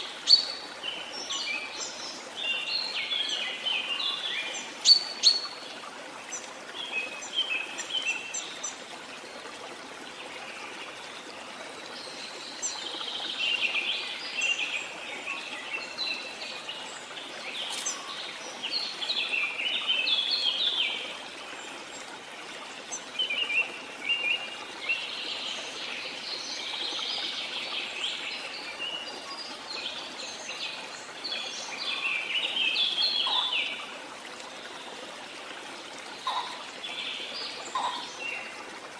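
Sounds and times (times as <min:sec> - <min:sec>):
birds singing and calling: 0:00.0 - 0:05.6, 0:12.0 - 0:21.0, 0:22.9 - 0:33.9, 0:36.2 - 0:38.6
flowing water rushing: 0:00.0 - 0:38.9.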